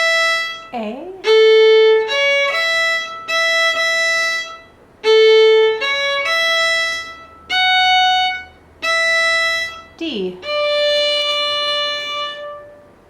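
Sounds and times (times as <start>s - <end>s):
fiddle playing slow folk melody: 0.0s - 13.0s.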